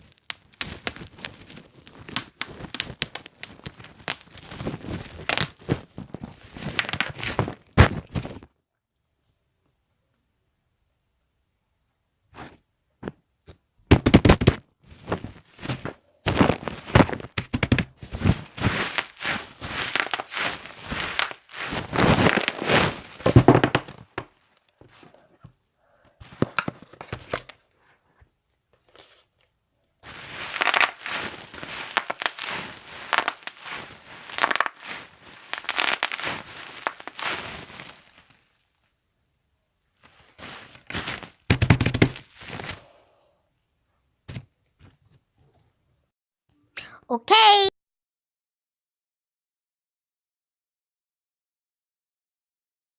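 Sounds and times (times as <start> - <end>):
bubble wrap popping and crinkling: 0.0 - 8.6, 13.9 - 24.9, 26.2 - 27.7, 30.0 - 39.0, 40.0 - 42.9.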